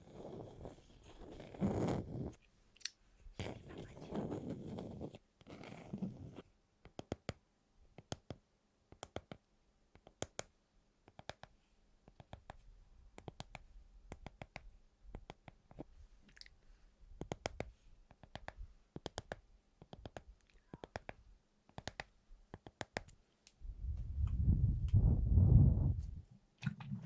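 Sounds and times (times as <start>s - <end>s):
faint sharp clicks and taps: 6.8s - 16.6s, 17.2s - 25.0s.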